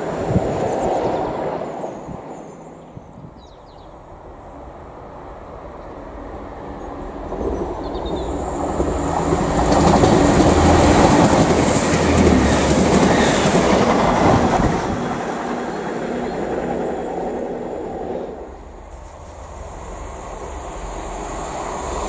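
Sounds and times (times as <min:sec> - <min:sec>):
train rushing past: 0:00.0 - 0:22.0
train wheel clatter: 0:06.8 - 0:22.0.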